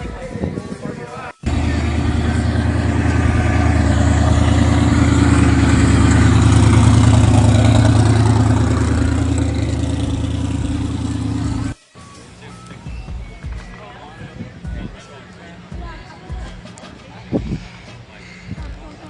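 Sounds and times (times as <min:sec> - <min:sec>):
car engine running: 0:01.4 - 0:11.8.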